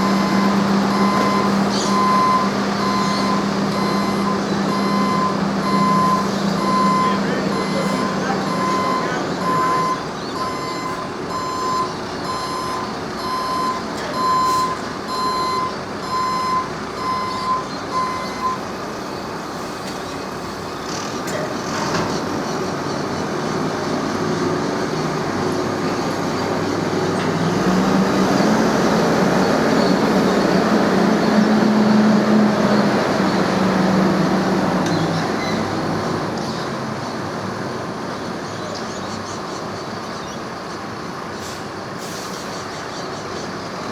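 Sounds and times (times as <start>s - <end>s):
reversing alarm beeping: 0.0s - 18.7s
diesel engine running: 0.0s - 39.9s.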